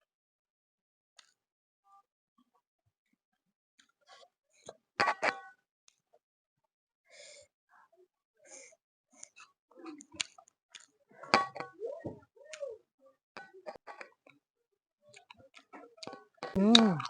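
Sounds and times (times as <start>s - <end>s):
person chewing: 15.1s - 17.0s
person humming: 16.6s - 17.0s.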